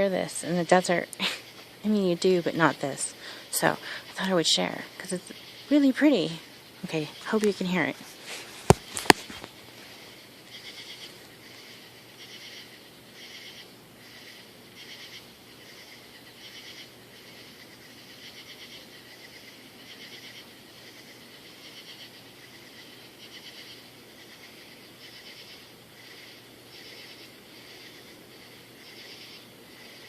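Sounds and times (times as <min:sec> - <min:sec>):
night insects calling in pulsed bursts: 0:00.0 - 0:08.0, 0:09.6 - 0:30.0.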